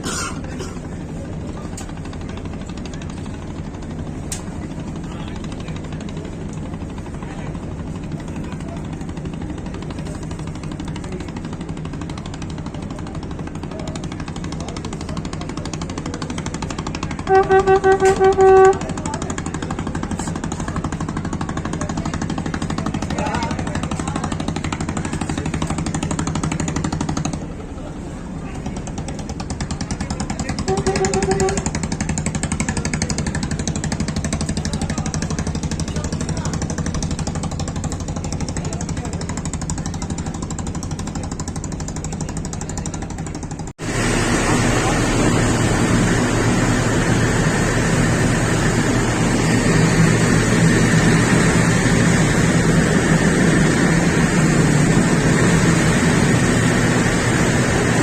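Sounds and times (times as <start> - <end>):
engine running with pulsing beat: 0.0 - 58.0
train rattling: 0.0 - 58.0
train horn toots: 17.1 - 19.2, 30.6 - 31.8.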